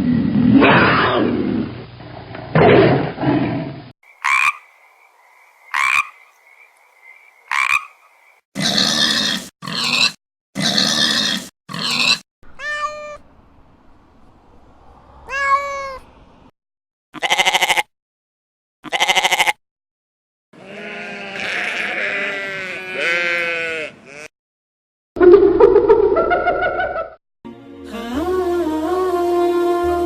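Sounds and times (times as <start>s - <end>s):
overlapping animal calls: 4.1s - 12.2s
quavering bleats: 8.6s - 13.1s, 17.2s - 17.9s, 18.8s - 19.6s, 20.6s - 24.3s
cat meowing: 12.5s - 13.2s, 15.3s - 16.1s.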